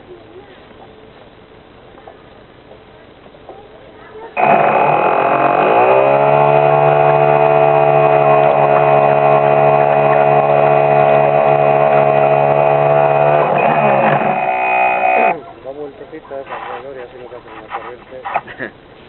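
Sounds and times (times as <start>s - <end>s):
motorboat motor running: 4.4s - 15.4s.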